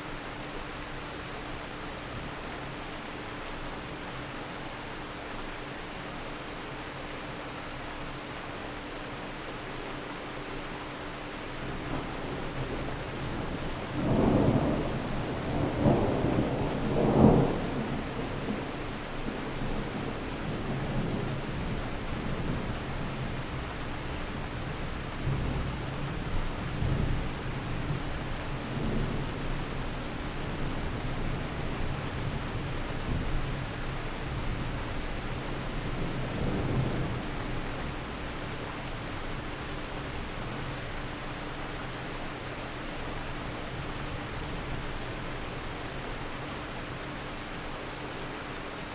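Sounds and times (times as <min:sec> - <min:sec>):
steady rain: 0:00.0 - 0:48.9
low thunder rumble: 0:11.9 - 0:18.7, 0:35.8 - 0:38.2.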